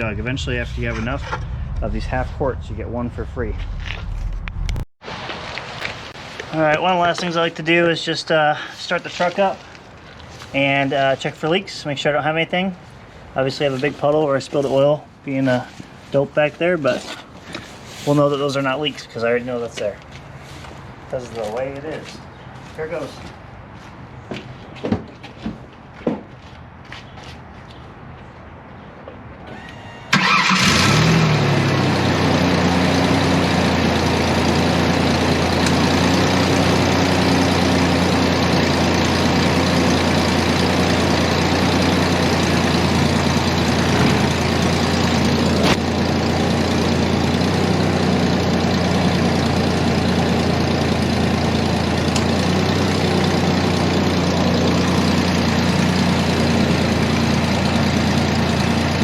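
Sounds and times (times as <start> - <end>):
engine starting and idling: 29.5 - 59.0.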